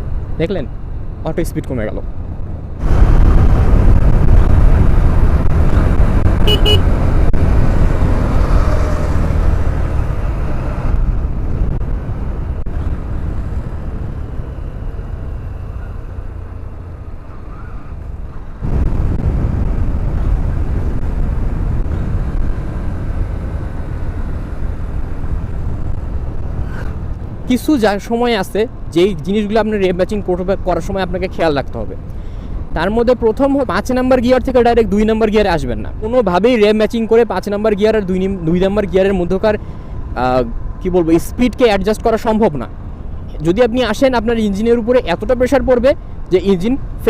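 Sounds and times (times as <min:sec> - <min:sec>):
wind and road rush: 0:00.0 - 0:47.0.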